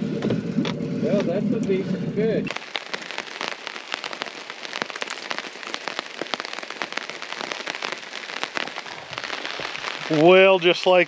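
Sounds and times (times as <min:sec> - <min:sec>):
rain pattering on a tarp: 0:02.5 - 0:11.0.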